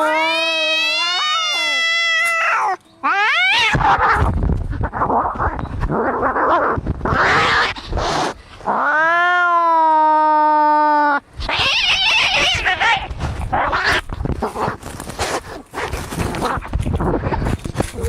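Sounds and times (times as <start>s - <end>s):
cat yowling: 0.0s - 4.3s, 8.7s - 14.0s
cats screeching: 0.0s - 14.8s.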